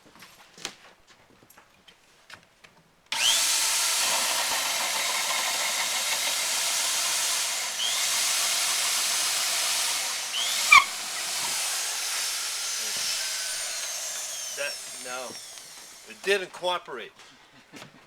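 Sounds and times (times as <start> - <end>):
electric drill boring into wood: 3.1 - 16.4.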